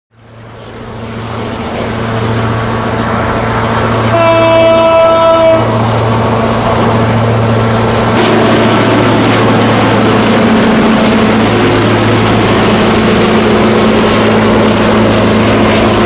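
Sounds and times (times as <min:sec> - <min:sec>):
diesel locomotive engine drone: 0:00.1 - 0:16.0
locomotive horn blast: 0:04.0 - 0:05.9, 0:08.1 - 0:09.3.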